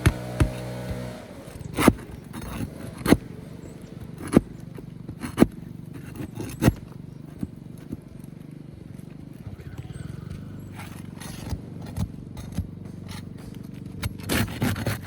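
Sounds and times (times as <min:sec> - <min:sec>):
metallic knocks and scrapes: 0:10.6 - 0:15.0.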